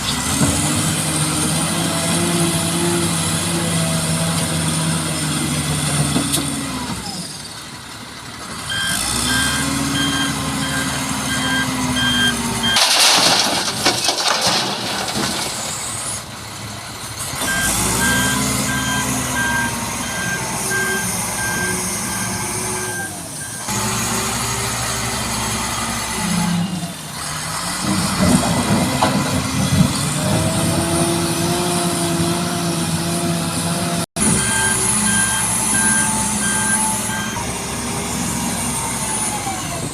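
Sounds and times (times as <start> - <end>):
heavy truck engine revving: 0.0 - 39.9
reversing alarm beeping: 8.7 - 12.8, 17.4 - 23.7, 34.3 - 37.5.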